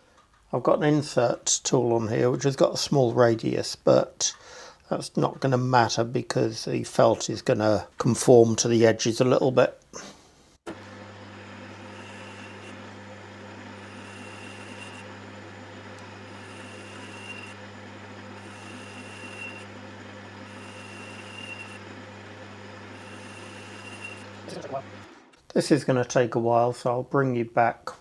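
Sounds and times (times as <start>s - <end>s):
metal lathe running: 10.7s - 25.3s.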